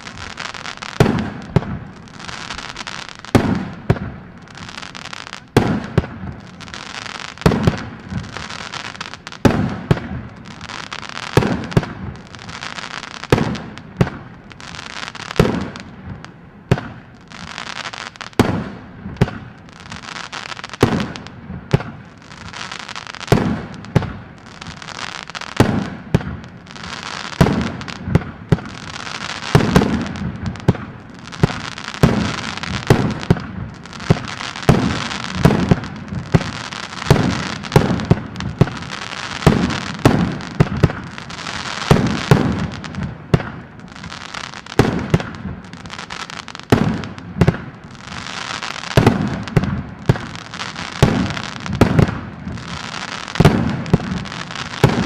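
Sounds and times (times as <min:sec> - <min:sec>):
fireworks bangs: 0:00.0 - 0:55.0
fireworks crackling: 0:00.0 - 0:55.0.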